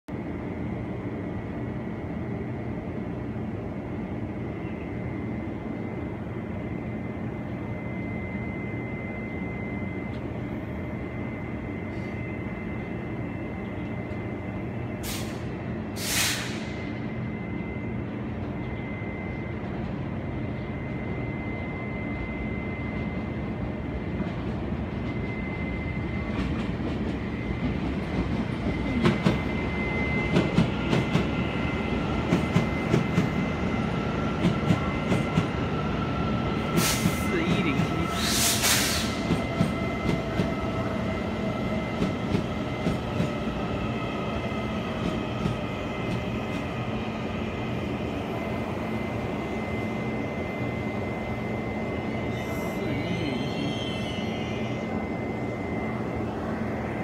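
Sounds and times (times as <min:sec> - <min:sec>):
electric train rumble and whine: 0:00.1 - 0:57.0
sharp hissing blasts: 0:16.0 - 0:16.7, 0:38.2 - 0:39.2.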